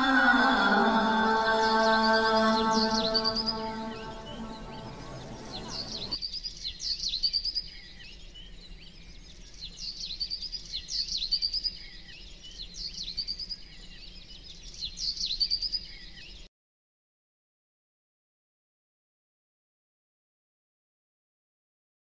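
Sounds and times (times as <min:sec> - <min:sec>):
songbird singing trills: 0:00.0 - 0:16.5.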